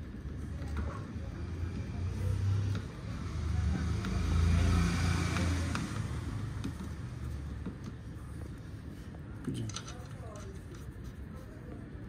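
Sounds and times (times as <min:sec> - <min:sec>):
vehicle engine hum: 0:00.0 - 0:09.4.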